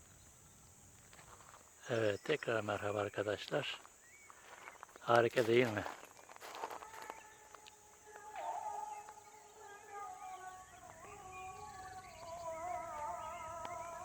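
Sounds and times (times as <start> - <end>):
distant animal howling: 8.0 - 14.0.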